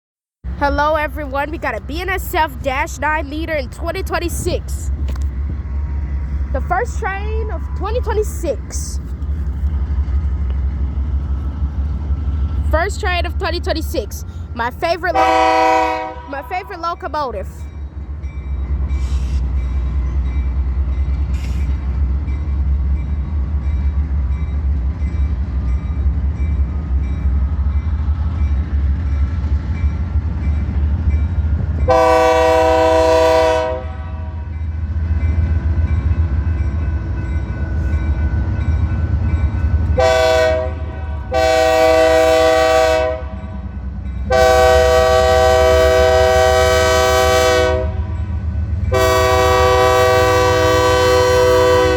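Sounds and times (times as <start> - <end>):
diesel locomotive rumbling: 0.4 - 51.9
locomotive air horn blasts: 15.1 - 16.6, 31.9 - 34.6, 40.0 - 43.4, 44.3 - 48.2, 48.9 - 51.9.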